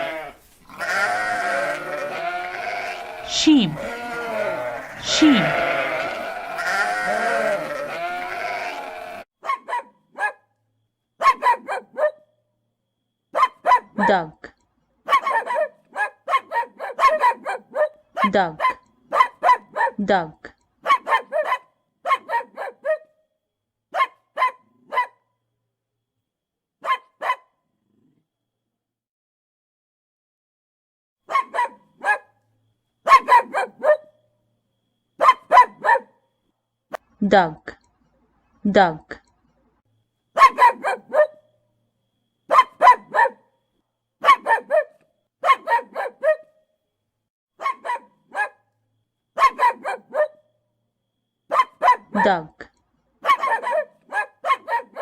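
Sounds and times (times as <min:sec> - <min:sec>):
duck quacking: 0:00.9 - 0:09.2.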